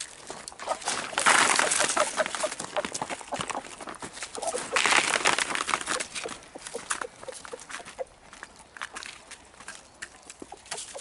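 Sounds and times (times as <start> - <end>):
hens clucking: 0.6 - 8.2, 10.4 - 11.0.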